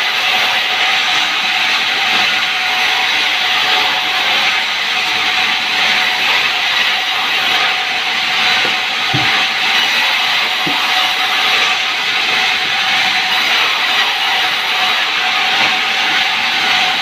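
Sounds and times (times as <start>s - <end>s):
sawmill saw cutting log: 0.0s - 17.0s.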